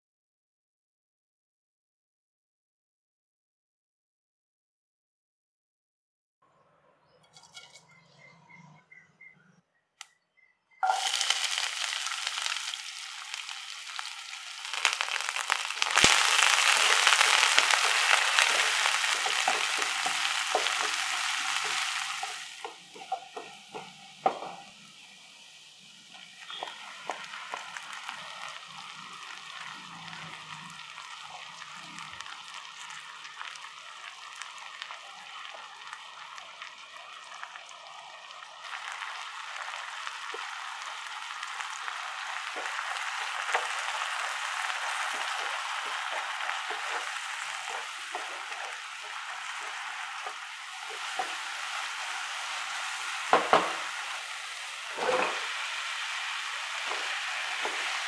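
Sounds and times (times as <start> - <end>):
wooden spatula scraping pan: 7.3 - 8.2, 43.2 - 51.7, 54.9 - 55.6
shallots sizzling in hot oil: 10.8 - 58.0.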